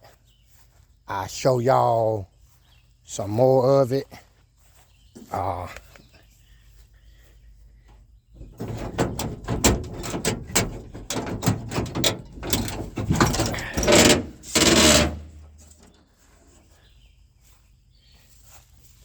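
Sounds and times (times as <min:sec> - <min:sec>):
rubbing and scraping noises: 0:08.3 - 0:16.8
rasping scrapes: 0:08.4 - 0:16.0.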